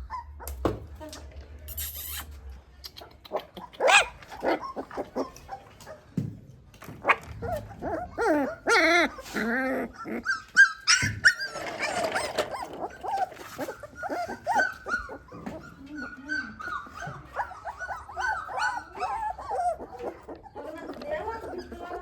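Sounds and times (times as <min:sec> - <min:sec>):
puppy whining and yelping: 0:00.0 - 0:00.6, 0:03.4 - 0:06.1, 0:07.0 - 0:22.0
puppy barking: 0:03.6 - 0:06.0, 0:07.0 - 0:22.0.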